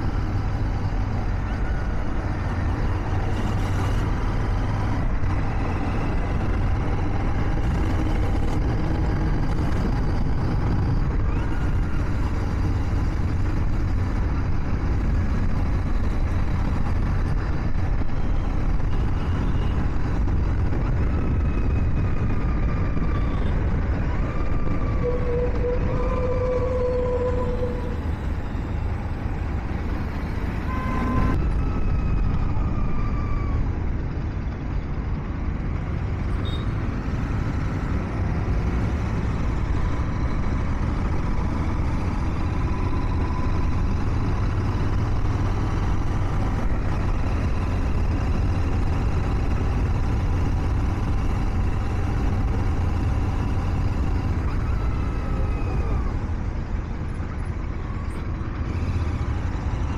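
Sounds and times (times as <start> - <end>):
motorcycle engine rumbling: 0.0 - 59.9
road and wind noise: 0.0 - 59.9
traffic sliding tones: 24.6 - 29.5.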